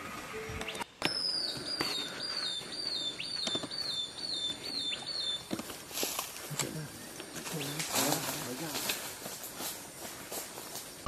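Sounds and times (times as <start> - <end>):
forest background noise: 0.0 - 11.0
bird whistling call: 0.6 - 5.5.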